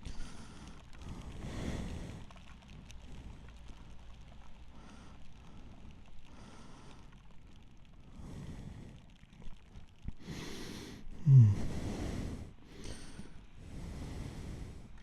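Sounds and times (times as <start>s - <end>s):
voiced sigh: 10.2s - 13.4s
person breathing heavily: 10.2s - 15.0s.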